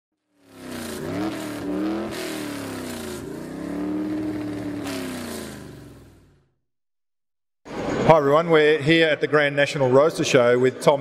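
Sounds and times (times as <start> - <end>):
car engine revving: 0.2 - 6.5.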